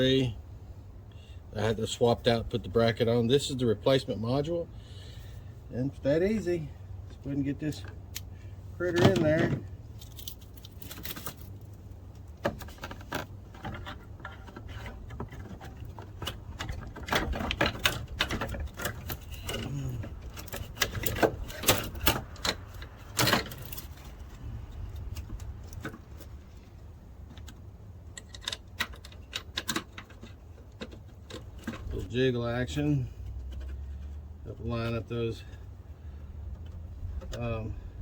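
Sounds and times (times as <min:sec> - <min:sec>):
low steady hum: 0:00.0 - 0:38.0
metal parts clicking and clattering: 0:08.9 - 0:26.3, 0:27.3 - 0:32.1.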